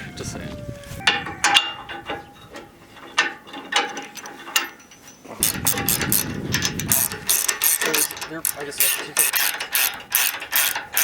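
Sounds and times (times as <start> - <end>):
ratchet clicking: 5.4 - 11.0.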